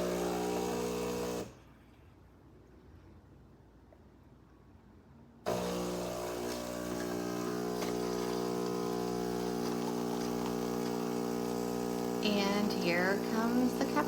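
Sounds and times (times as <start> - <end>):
espresso machine pump buzzing: 0.0 - 1.6, 5.5 - 14.0.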